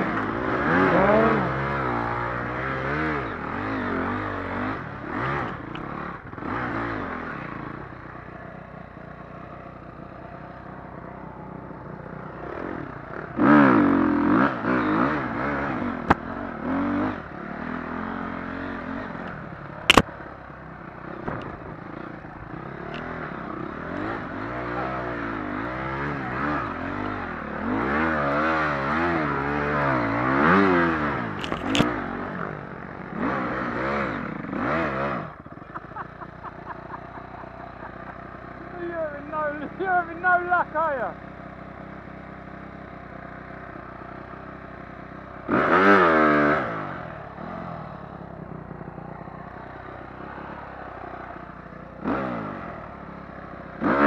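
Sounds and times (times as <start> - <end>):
dirt bike engines revving: 0.0 - 54.0
sharp crack: 19.8 - 20.1.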